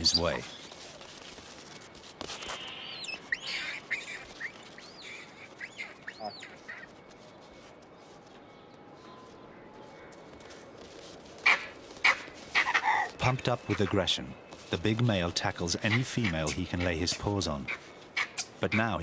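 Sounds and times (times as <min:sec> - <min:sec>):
high-pitched animal calls: 0:02.4 - 0:06.9.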